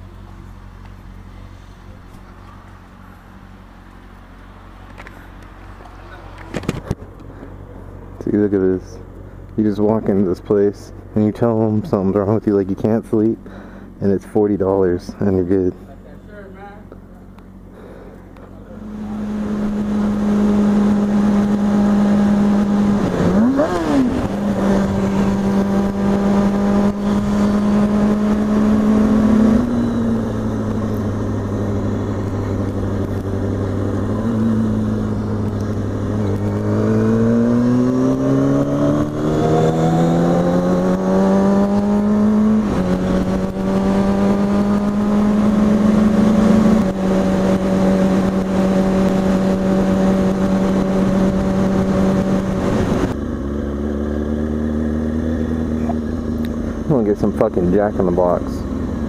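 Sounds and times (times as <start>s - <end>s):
motorcycle engine accelerating: 16.8s - 59.0s.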